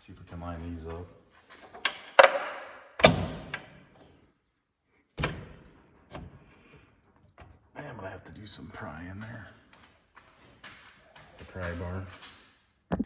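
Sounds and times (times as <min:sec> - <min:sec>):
metal clunks and knocks: 0:01.5 - 0:04.0.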